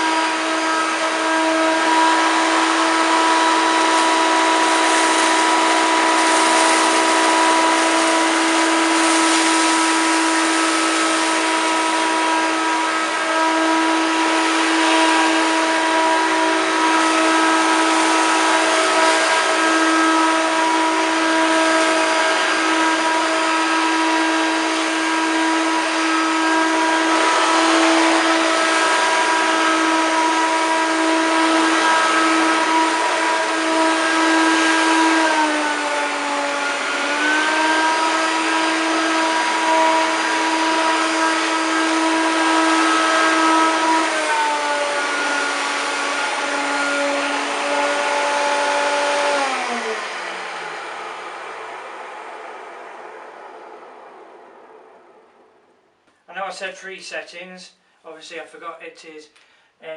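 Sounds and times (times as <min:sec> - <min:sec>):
vacuum cleaner running: 0:00.0 - 0:56.5
cornflakes sucked up: 0:04.6 - 0:11.2.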